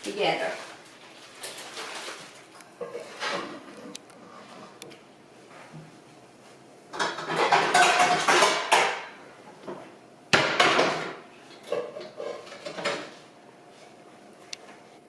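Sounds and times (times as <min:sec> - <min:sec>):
metal cookware clattering: 0:06.9 - 0:09.2.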